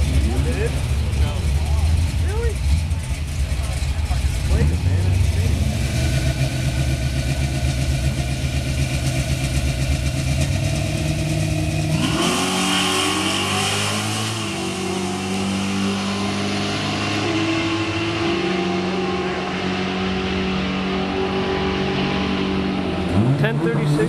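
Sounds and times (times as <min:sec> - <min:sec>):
race car engines revving: 0:00.0 - 0:24.0.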